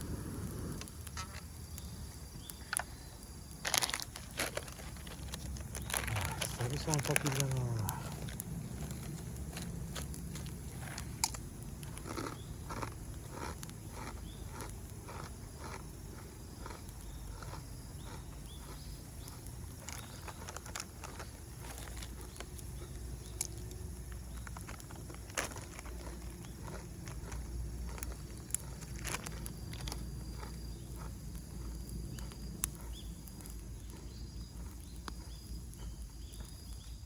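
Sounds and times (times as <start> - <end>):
steady low rumble: 0.0 - 16.2
burning wood popping: 0.0 - 37.0
campfire crackling: 0.0 - 37.0
insects chirping: 0.0 - 37.0.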